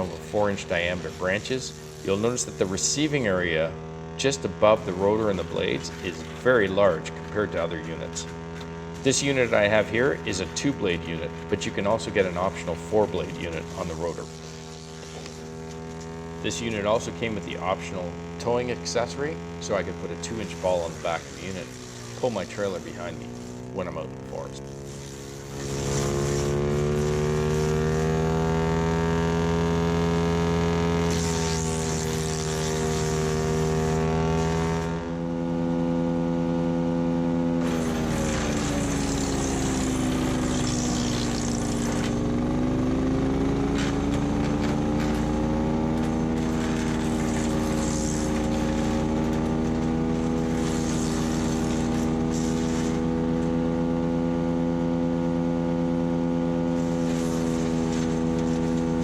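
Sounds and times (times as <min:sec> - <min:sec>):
wood chipper engine running: 0:00.0 - 0:59.0
branches crackling in chipper: 0:11.1 - 0:17.0, 0:19.6 - 0:28.2, 0:37.6 - 0:53.5, 0:56.8 - 0:59.0.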